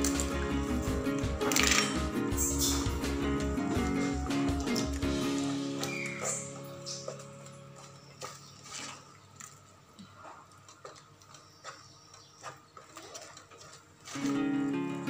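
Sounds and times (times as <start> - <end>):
loud music: 0.0 - 5.9.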